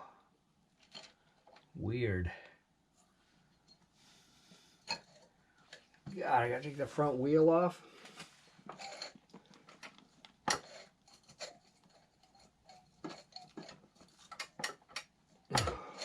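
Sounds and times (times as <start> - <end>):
hand tools and metal parts clicking: 0.8 - 1.7, 8.6 - 16.0.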